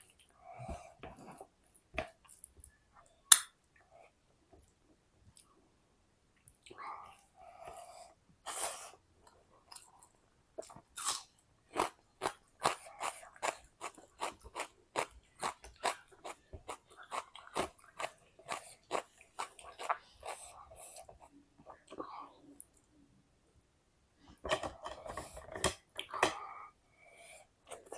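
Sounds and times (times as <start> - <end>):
person chewing crunchy food: 10.6 - 21.9.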